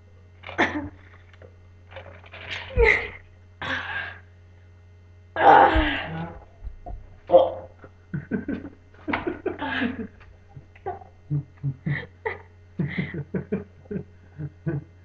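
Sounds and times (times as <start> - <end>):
low hum: 0.0 - 15.0
person laughing: 2.6 - 3.2, 7.3 - 10.2, 10.8 - 15.0.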